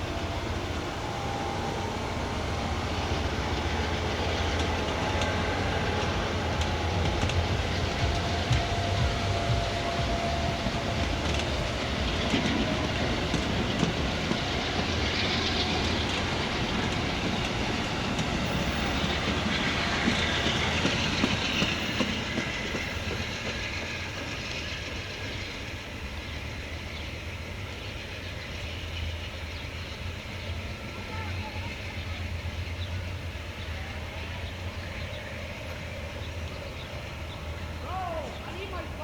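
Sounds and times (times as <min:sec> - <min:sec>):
passenger train rolling past: 0:00.0 - 0:39.0
wheels clicking over rail joints: 0:00.2 - 0:26.4.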